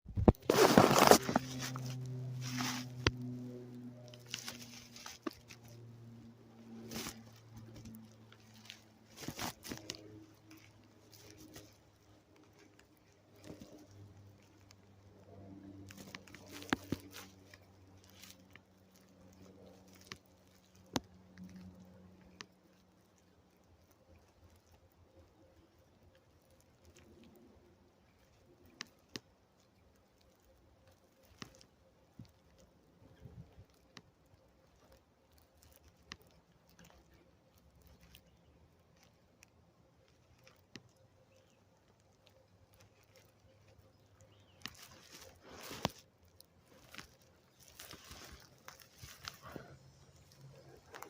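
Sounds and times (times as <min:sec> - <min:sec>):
steady low hum: 0:00.1 - 0:28.6
rustling: 0:00.1 - 0:51.0.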